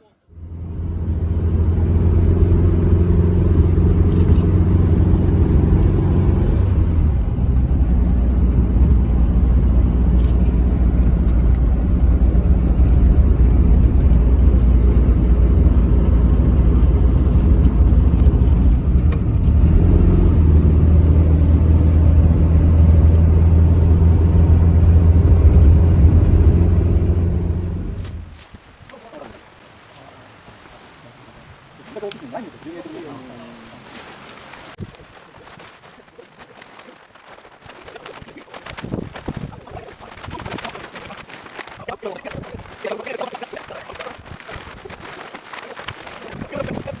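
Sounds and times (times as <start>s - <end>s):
engine running steadily: 0.3s - 28.4s.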